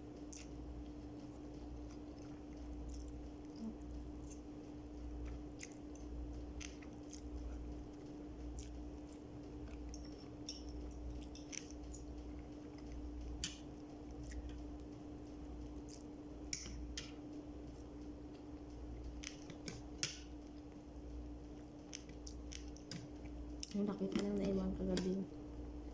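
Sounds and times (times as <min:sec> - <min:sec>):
steady low hum: 0:00.0 - 0:25.9
person chewing: 0:00.2 - 0:20.8, 0:21.5 - 0:24.2
wet mouth clicks and smacks: 0:05.2 - 0:07.4.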